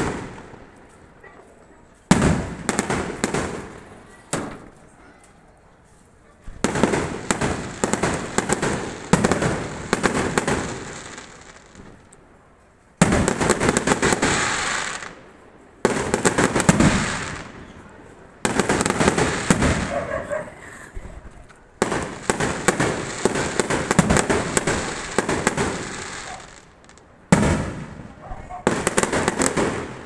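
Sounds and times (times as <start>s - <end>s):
fireworks crackling pops: 0.0s - 5.4s, 6.1s - 30.0s.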